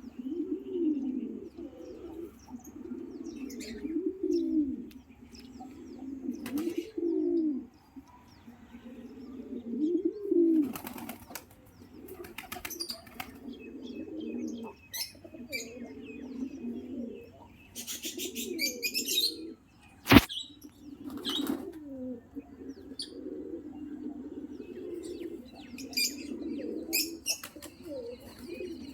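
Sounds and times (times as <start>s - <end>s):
pigeons cooing: 0.0s - 28.9s
wing flapping: 10.6s - 13.4s.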